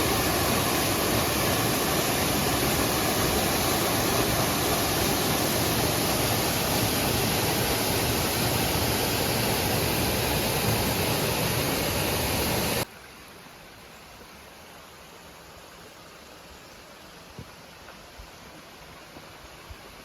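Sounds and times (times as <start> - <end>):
waterfall rushing: 0.0 - 12.9
faint steady hiss: 0.0 - 20.0.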